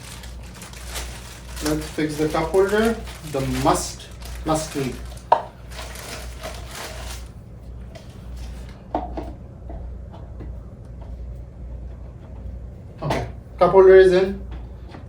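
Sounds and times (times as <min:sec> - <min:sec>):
plastic rustling: 0:00.0 - 0:08.8
steady low hum: 0:00.0 - 0:15.0.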